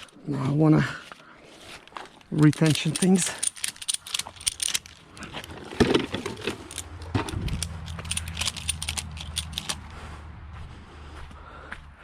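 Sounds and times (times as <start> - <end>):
ratchet buckles clicking: 2.1 - 9.9.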